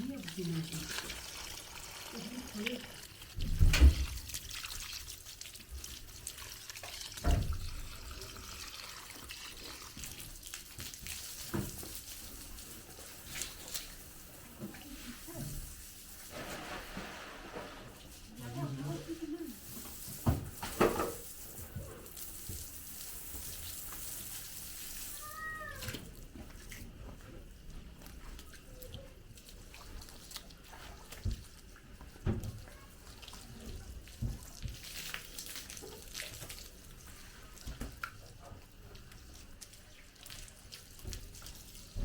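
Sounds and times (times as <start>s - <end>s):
water running: 0.0s - 42.0s
cat mewing: 25.1s - 26.0s.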